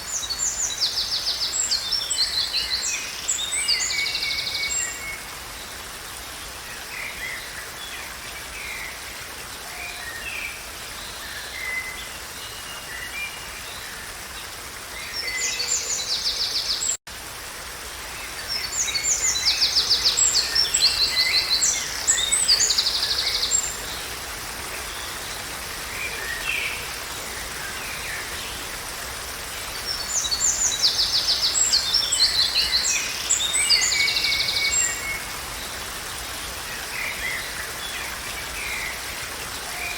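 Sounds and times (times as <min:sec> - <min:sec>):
songbirds chirping: 0:17.8 - 0:39.9.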